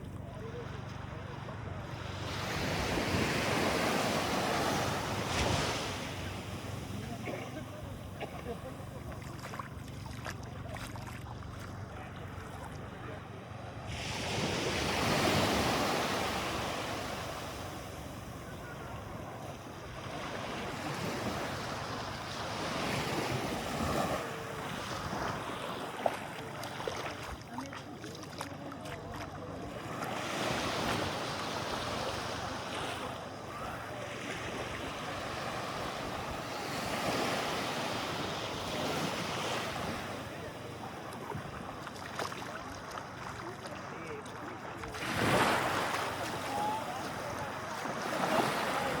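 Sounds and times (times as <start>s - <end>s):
waves washing in shallow water: 0.0s - 49.0s.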